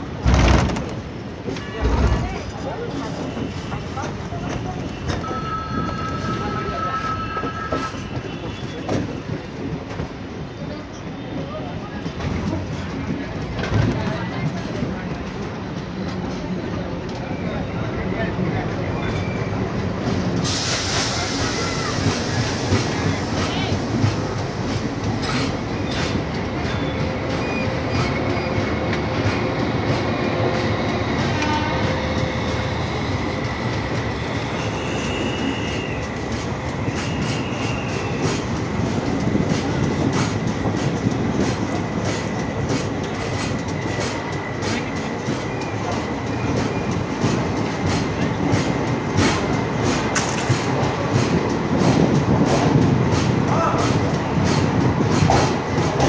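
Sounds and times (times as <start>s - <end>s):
train wheels clacking over rails: 0.0s - 17.3s, 18.2s - 56.0s
high train whine: 0.0s - 56.0s.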